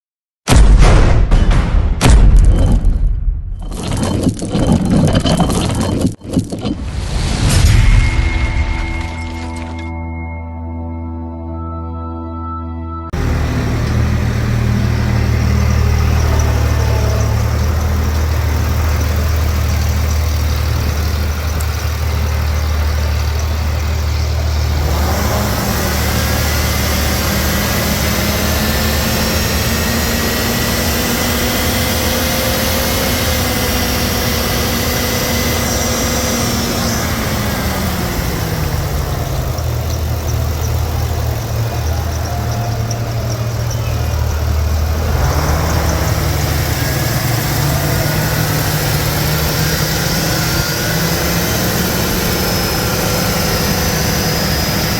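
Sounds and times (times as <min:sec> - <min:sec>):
engine idling and revving: 0:13.1 - 0:54.9.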